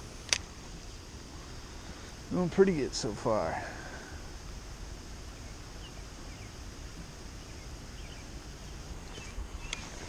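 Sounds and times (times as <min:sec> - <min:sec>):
low rumble and hiss: 0:00.0 - 0:10.0
sharp clicks: 0:00.2 - 0:00.5
faint bird chirps: 0:05.3 - 0:06.7, 0:07.3 - 0:10.0.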